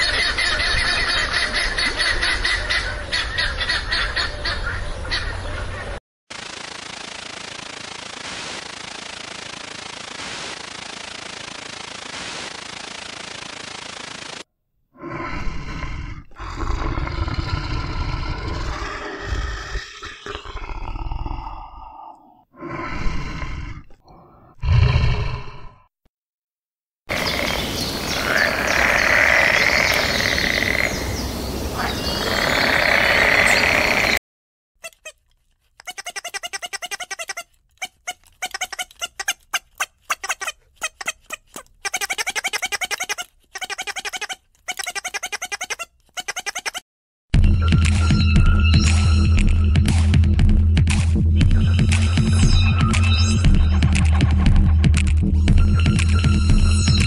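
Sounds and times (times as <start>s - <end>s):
bear growling: 15.0s - 25.9s
chorus of frogs calling: 27.1s - 34.2s.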